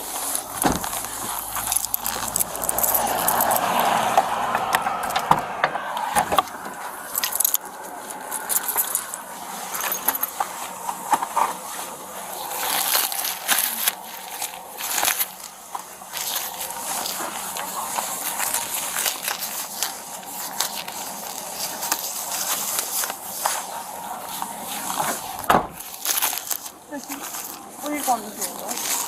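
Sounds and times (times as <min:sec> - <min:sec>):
clothing rustling: 0:00.0 - 0:04.0, 0:06.3 - 0:29.0
small metal items jingling: 0:00.2 - 0:04.0, 0:07.0 - 0:10.4.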